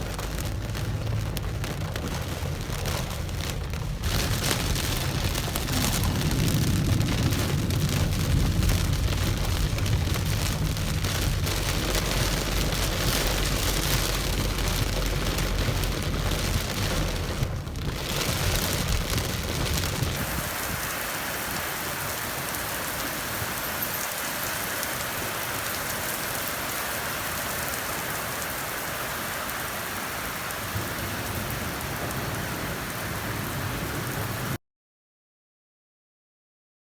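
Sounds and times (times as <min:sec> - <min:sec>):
deep rumble: 0:00.0 - 0:20.9
heavy rain pouring: 0:00.0 - 0:34.6.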